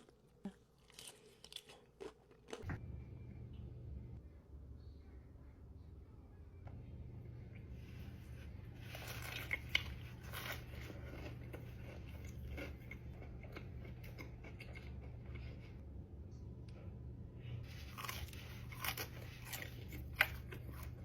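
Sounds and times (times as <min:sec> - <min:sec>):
crunching and chewing: 0:00.0 - 0:02.7, 0:08.3 - 0:15.8, 0:17.6 - 0:21.0
steady low hum: 0:00.0 - 0:21.0.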